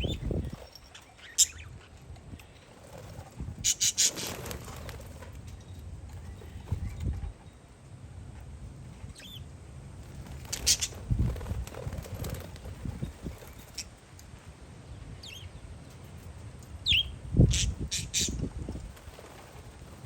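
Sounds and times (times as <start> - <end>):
parakeets chirping: 0.0 - 5.2, 9.1 - 9.5, 10.2 - 14.0, 15.2 - 15.6, 16.8 - 19.7
wind rumbling on microphone: 0.0 - 7.6, 10.0 - 20.0.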